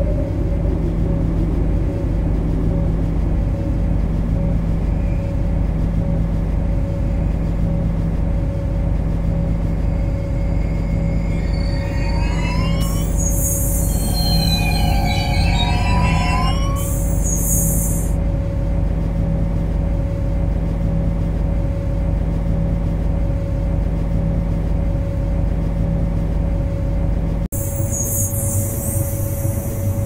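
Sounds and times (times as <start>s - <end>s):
metro train rumbling on track: 0.0s - 30.0s
wheels squealing: 9.4s - 18.2s.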